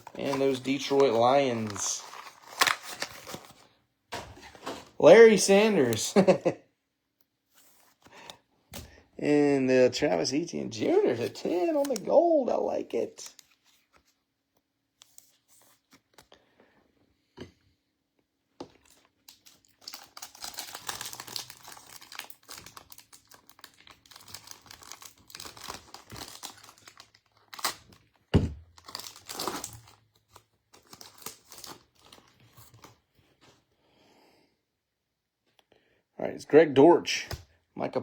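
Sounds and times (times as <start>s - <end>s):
foil wrapper tearing and crinkling: 0.0s - 3.6s, 18.9s - 32.3s.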